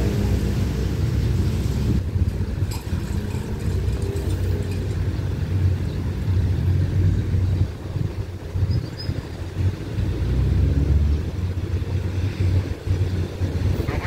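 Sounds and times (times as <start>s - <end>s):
road vehicles idling: 0.0s - 14.0s
distant diesel train: 11.3s - 14.0s.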